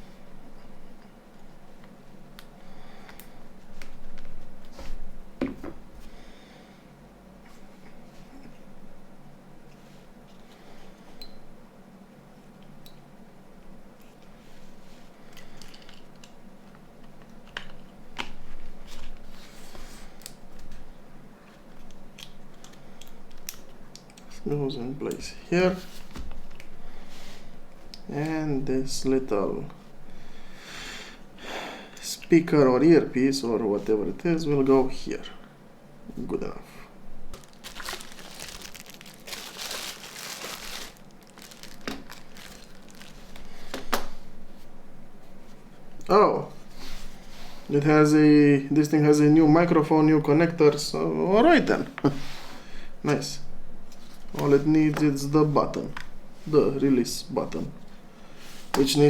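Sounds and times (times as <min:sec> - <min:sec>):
crinkling rustle: 0:37.2 - 0:44.7.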